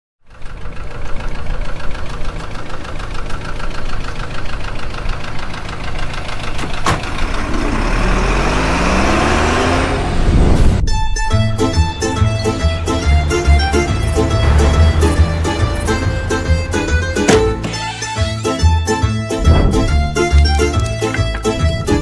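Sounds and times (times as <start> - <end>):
engine revving: 4.6 - 22.0.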